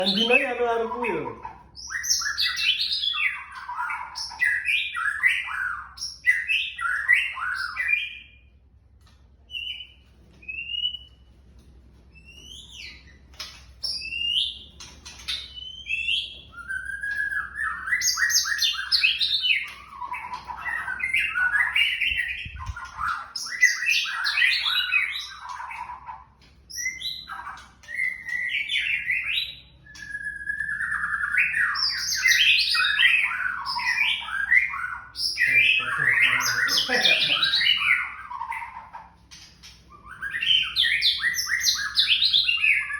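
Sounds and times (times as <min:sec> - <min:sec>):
bird singing whistled phrases: 0:00.0 - 0:08.4, 0:15.4 - 0:26.0, 0:26.8 - 0:38.7, 0:39.9 - 0:42.9.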